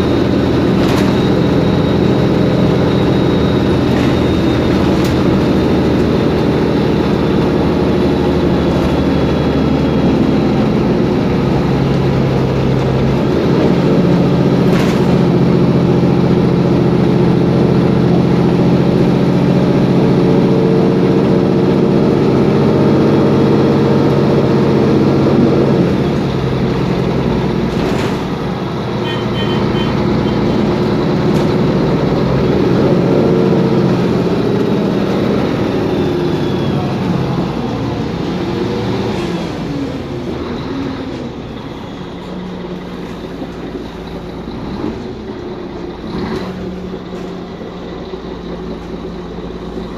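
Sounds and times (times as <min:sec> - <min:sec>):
bus diesel engine running: 0:00.0 - 0:49.9.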